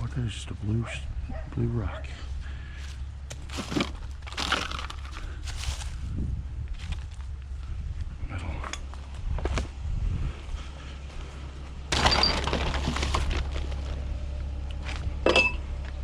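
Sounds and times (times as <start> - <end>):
low hum: 0.0 - 16.0
items knocking and clattering: 3.4 - 5.1, 11.9 - 13.9, 15.2 - 15.6.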